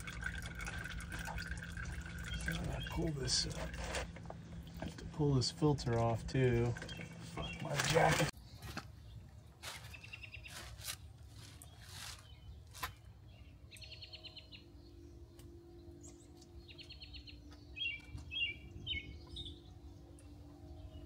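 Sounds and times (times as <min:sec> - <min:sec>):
faint steady hum: 0:00.0 - 0:09.6
small birds chirping: 0:01.5 - 0:21.0.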